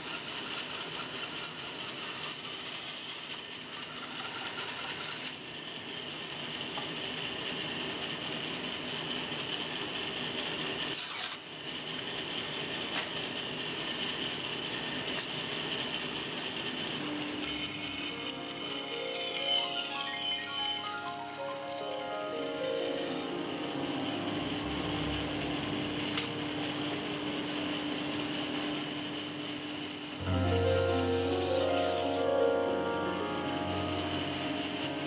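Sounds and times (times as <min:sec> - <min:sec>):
band saw cutting wood: 0:00.0 - 0:11.5, 0:12.2 - 0:35.0
music: 0:17.5 - 0:28.1, 0:30.2 - 0:35.0.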